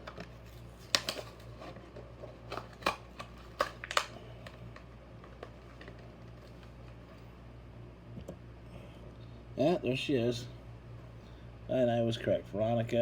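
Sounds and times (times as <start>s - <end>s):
packaging clicks and crinkles: 0.0s - 7.2s
low steady hum: 0.0s - 13.0s.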